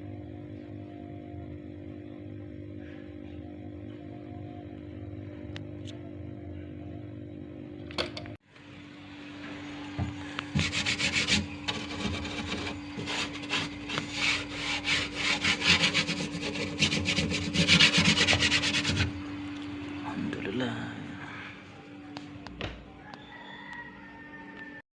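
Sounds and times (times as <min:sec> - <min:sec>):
steady low hum: 0:00.0 - 0:24.1
scraping strokes: 0:10.5 - 0:19.2.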